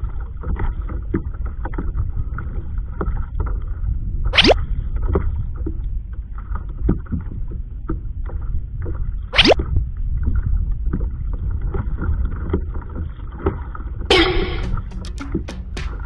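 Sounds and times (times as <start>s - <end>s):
wind rumble on microphone: 0.0s - 14.8s
water lapping against hull: 0.0s - 15.8s.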